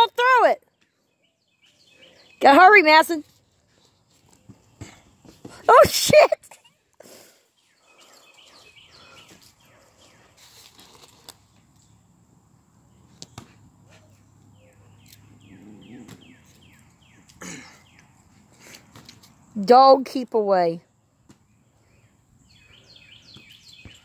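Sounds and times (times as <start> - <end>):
faint bird song: 0.6 - 5.5, 6.5 - 20.0, 20.8 - 24.0.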